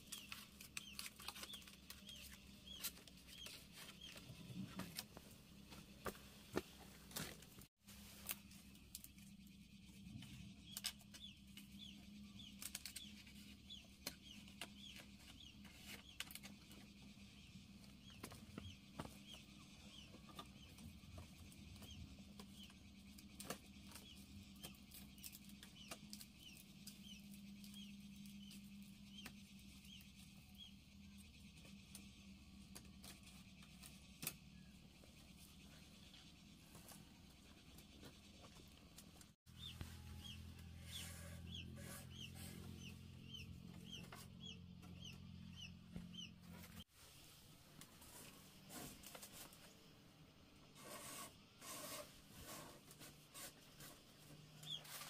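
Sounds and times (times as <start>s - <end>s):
bird chirping: 9.0s - 46.8s.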